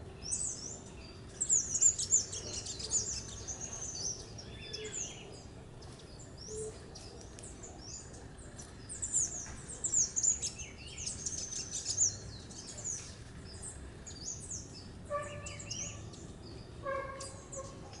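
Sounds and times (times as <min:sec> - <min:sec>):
small birds chirping: 0:00.0 - 0:18.0
lower bird call: 0:15.1 - 0:18.0.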